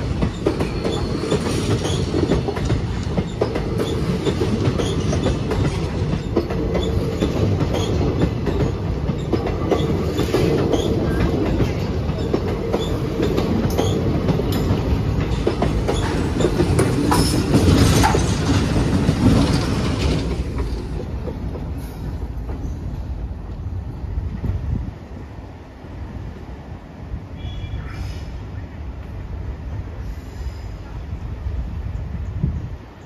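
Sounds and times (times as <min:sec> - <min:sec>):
clickety-clack over rail joints: 0:00.0 - 0:25.4
train wheels rumbling on rails: 0:00.0 - 0:33.0.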